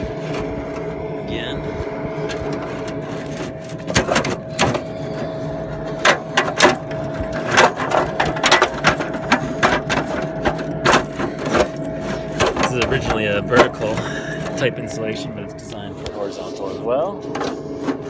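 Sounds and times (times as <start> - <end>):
exhaust fan hum: 0.0 - 18.0
metal scraping and clicking: 2.2 - 14.7.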